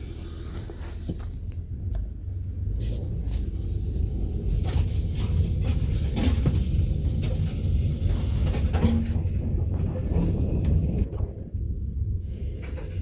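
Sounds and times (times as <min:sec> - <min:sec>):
minivan rumbling on rough road: 0:00.0 - 0:13.0
knocks and clatter: 0:04.7 - 0:11.4.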